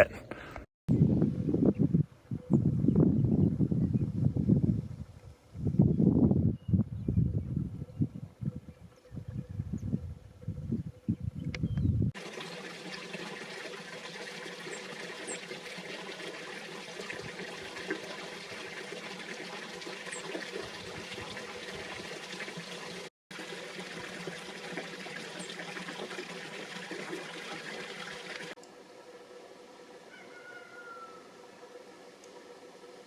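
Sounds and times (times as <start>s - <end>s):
running water rushing: 12.2s - 28.6s.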